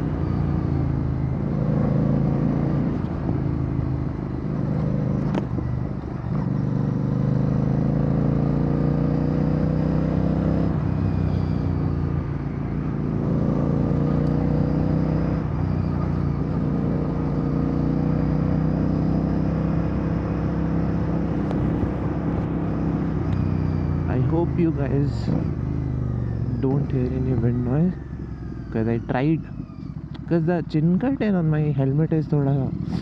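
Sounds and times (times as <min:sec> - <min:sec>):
motorcycle engine revving: 0:00.0 - 0:31.4
low wind rumble: 0:20.2 - 0:26.4.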